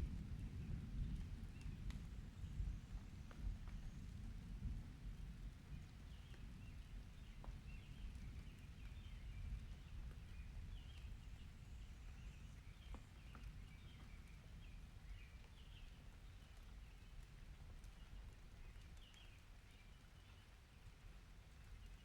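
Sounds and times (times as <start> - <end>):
steady low rain rumble: 0.0 - 22.0
ticks of raindrops: 0.0 - 22.0.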